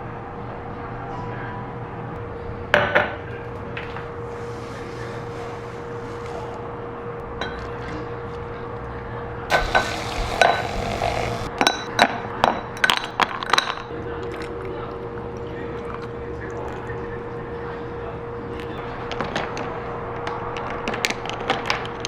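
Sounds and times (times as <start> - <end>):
steady low hum: 9.5 - 11.5.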